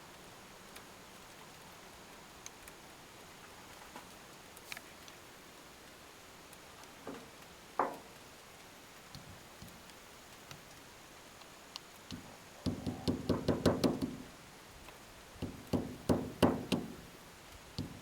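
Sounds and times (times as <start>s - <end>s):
light knocking on metal parts: 6.8s - 8.3s, 11.7s - 14.3s, 14.9s - 18.0s.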